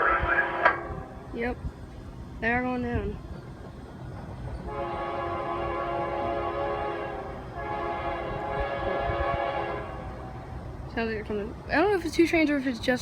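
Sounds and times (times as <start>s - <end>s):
locomotive air horn blasts: 0.0s - 1.2s, 4.7s - 10.4s.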